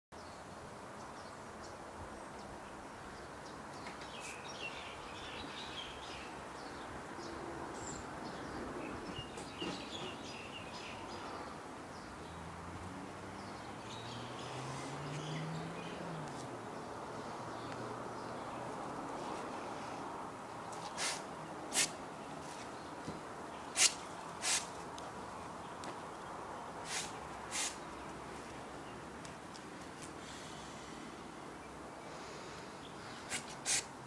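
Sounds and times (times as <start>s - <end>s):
outdoor background noise: 0.1s - 34.0s
birds chirping: 0.2s - 33.9s.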